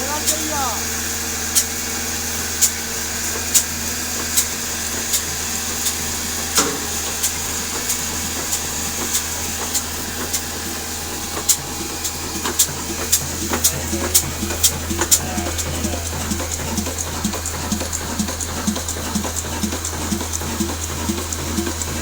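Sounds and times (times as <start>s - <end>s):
single-cylinder diesel engine knocking: 0.0s - 22.0s
steady low hum: 6.3s - 22.0s.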